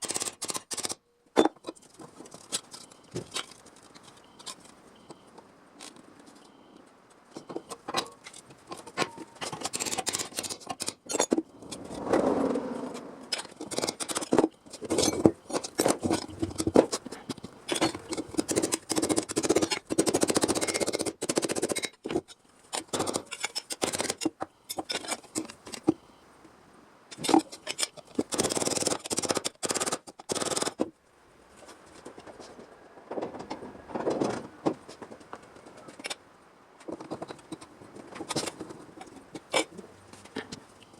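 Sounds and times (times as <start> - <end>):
hand tools clicking and knocking: 7.3 - 11.8, 13.3 - 26.0
steady scraping or cutting: 11.6 - 15.0.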